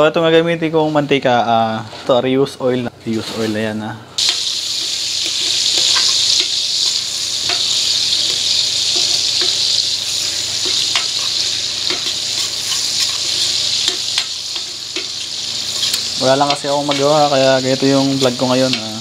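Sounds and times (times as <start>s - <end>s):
food sizzling in oil: 4.2s - 19.0s
utensil tapping pan: 7.4s - 9.9s, 10.6s - 17.4s.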